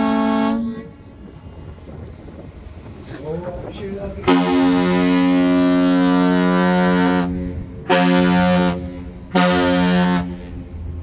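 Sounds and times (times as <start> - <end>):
ship's horn blasts: 0.0 - 1.8, 4.2 - 11.0.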